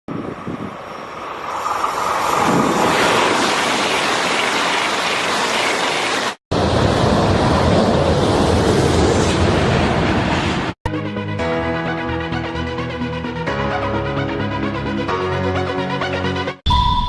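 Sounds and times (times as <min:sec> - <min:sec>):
high-speed train rushing past: 0:00.1 - 0:10.8.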